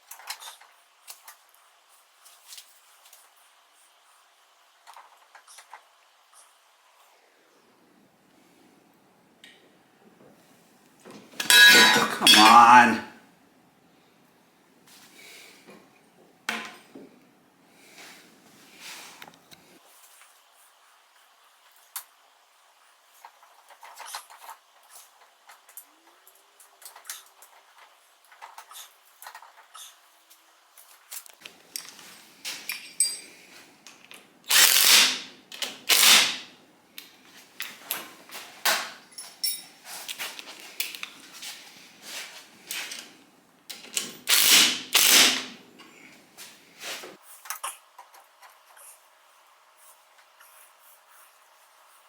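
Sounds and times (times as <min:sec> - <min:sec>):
tools clicking and clattering: 0:11.4 - 0:12.6, 0:31.2 - 0:36.4, 0:38.6 - 0:41.2.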